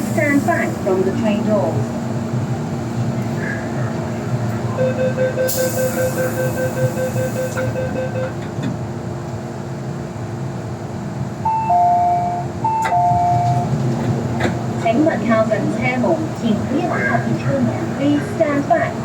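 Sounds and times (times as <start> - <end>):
train hum: 0.0 - 19.0
rapid door warning beeps: 4.8 - 8.4, 11.5 - 13.7.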